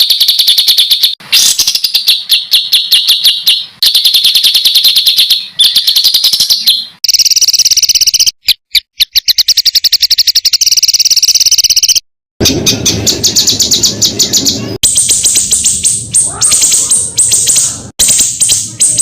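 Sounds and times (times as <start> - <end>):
songbird calls: 0.0 - 7.3, 12.4 - 19.0.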